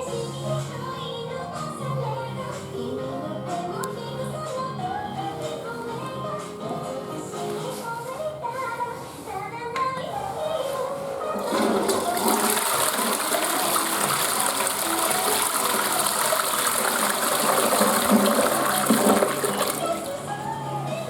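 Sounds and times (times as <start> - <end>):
faint background music: 0.0 - 21.0
toilet flushing: 11.0 - 20.3.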